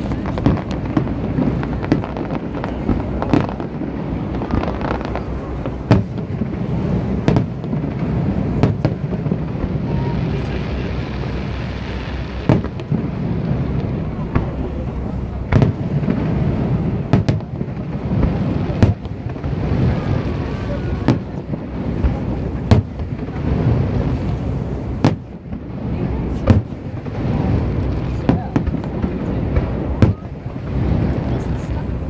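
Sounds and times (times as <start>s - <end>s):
steady low rumble: 0.0s - 32.0s
firework shells bursting: 10.4s - 14.6s.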